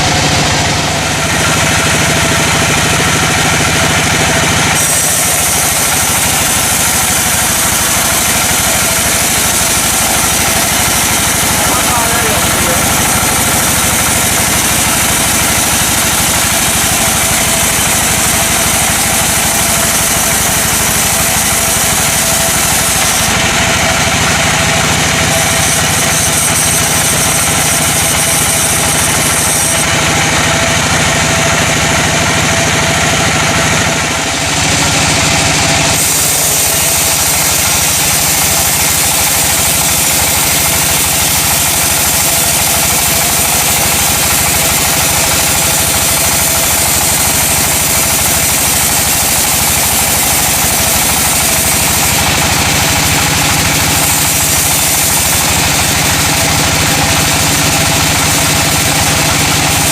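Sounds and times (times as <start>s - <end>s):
sawmill machinery droning: 0.0s - 59.9s.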